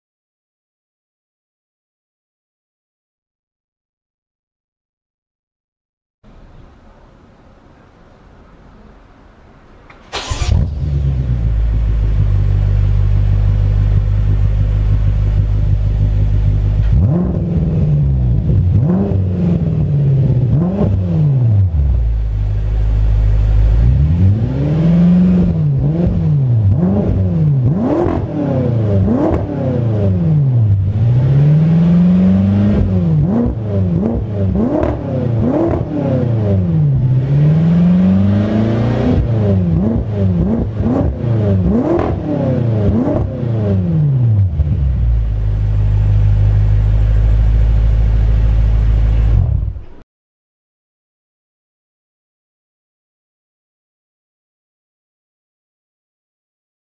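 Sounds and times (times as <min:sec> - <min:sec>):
car engine idling and revving: 0:06.3 - 0:50.0.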